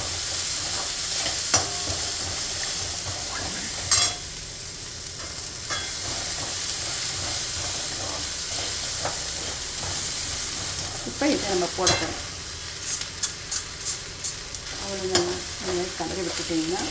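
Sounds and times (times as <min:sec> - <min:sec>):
food sizzling in oil: 0:00.0 - 0:16.9
spatula scraping pan: 0:05.2 - 0:16.5.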